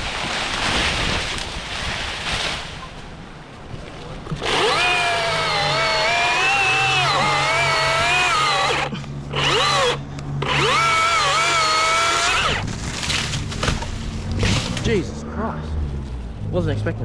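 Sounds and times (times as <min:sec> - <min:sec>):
chainsaw cutting wood: 0:04.4 - 0:14.9.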